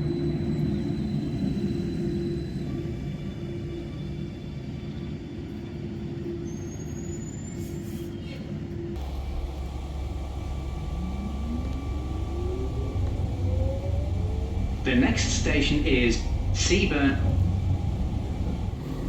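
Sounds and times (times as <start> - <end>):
electric train humming: 9.0 - 19.0
traction motors whining: 9.0 - 19.0.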